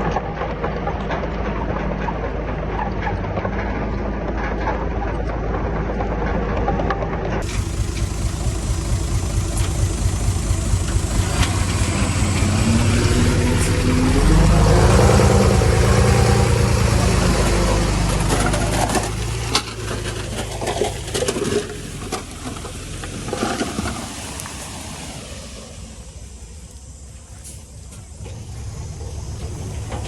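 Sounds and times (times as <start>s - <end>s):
clanks and knocks: 7.4s - 24.0s
diesel engine running: 7.4s - 30.0s.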